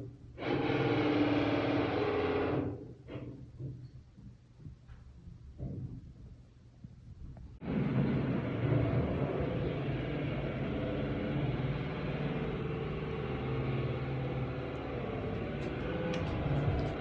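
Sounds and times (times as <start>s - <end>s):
construction machinery drone: 0.0s - 2.9s, 7.6s - 17.0s.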